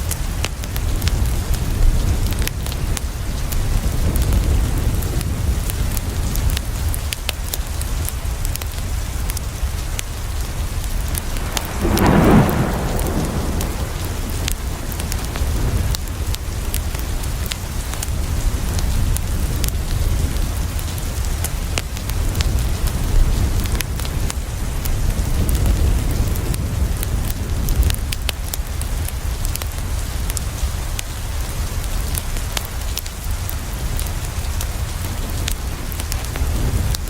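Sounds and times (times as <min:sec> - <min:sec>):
rain on a window: 0:00.0 - 0:37.0
wood fire crackling: 0:00.0 - 0:37.0
thunder rolling: 0:10.7 - 0:17.6
low rumble: 0:10.8 - 0:16.7.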